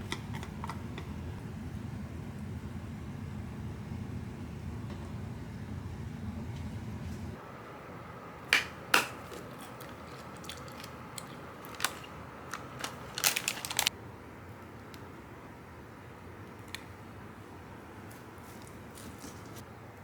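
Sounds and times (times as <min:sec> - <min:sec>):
faint steady hum: 0:00.0 - 0:20.0
packaging crackling: 0:09.5 - 0:13.9.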